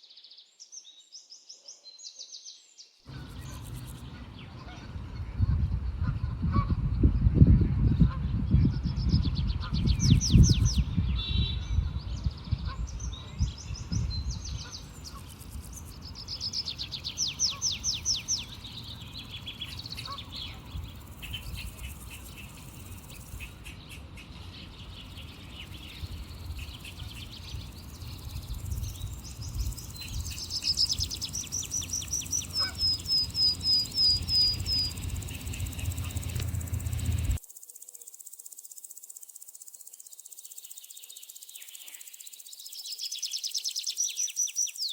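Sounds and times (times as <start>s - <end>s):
small birds singing trills: 0.0s - 44.9s
loud low rumble: 32.4s - 37.4s.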